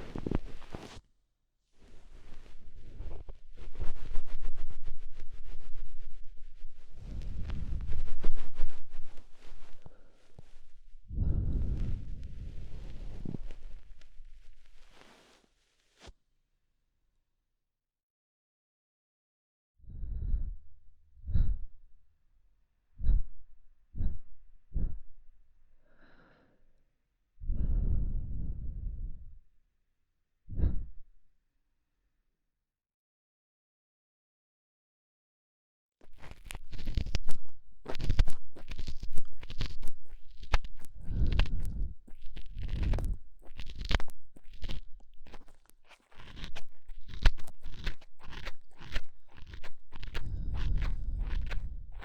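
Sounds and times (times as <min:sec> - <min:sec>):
breath puffs into microphone: 0:07.0 - 0:14.0
ear pick scraping in ear: 0:36.0 - 0:52.0.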